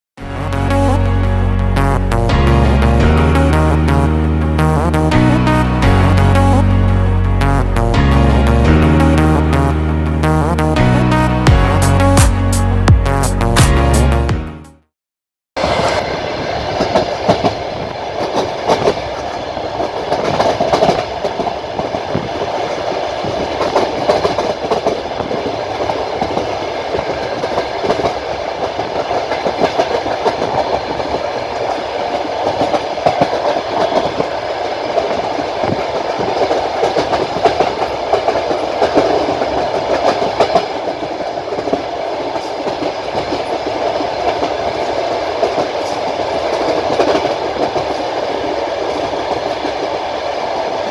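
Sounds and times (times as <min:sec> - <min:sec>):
train wheels rumbling on rails: 0:15.6 - 0:50.9
wheels clicking over rail joints: 0:15.6 - 0:50.9.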